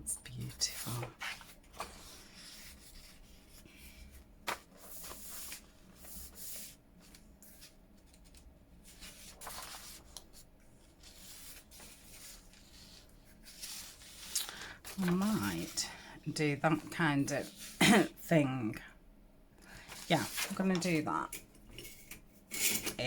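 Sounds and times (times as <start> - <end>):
paper rustling and rubbing: 0.6 - 16.0, 16.8 - 17.8, 19.8 - 21.0.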